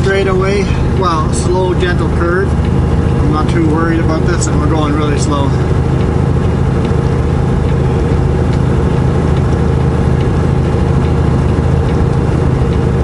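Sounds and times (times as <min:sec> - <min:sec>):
diesel engine braking drone: 0:00.0 - 0:13.0.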